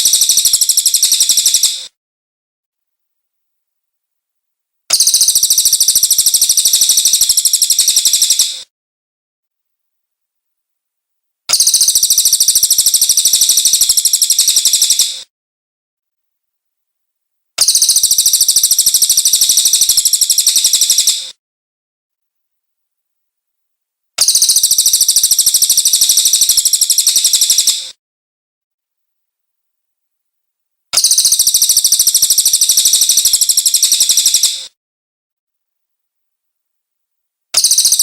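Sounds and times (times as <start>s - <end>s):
bird trilling: 37.6s - 38.0s.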